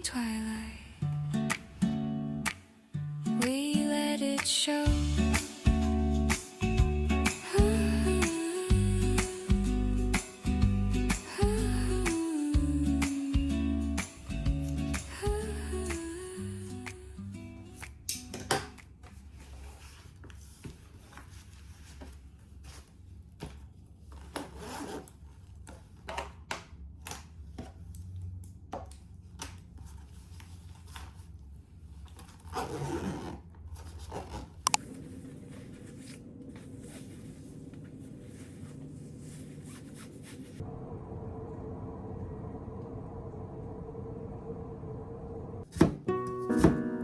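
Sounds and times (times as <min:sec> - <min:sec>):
low room hum: 0:18.8 - 0:45.7.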